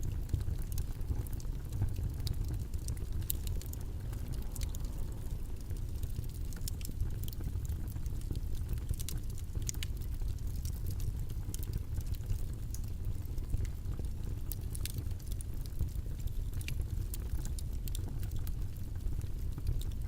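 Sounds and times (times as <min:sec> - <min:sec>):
low rumbling noise: 0:00.3 - 0:08.9.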